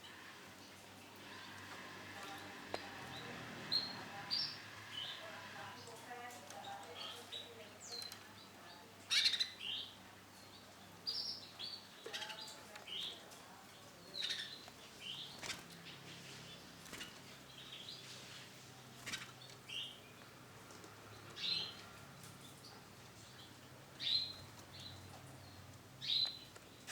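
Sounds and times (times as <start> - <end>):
canary chirping: 2.8 - 8.2, 9.0 - 13.3, 14.1 - 18.2, 21.1 - 26.9.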